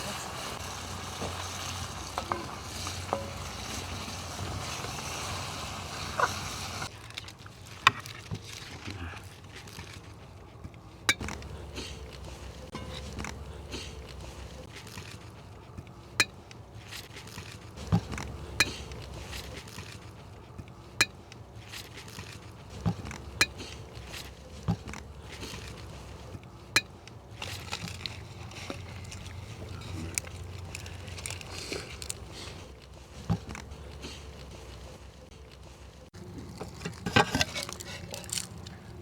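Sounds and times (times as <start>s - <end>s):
cutlery clinking on plates: 1.2s - 5.0s.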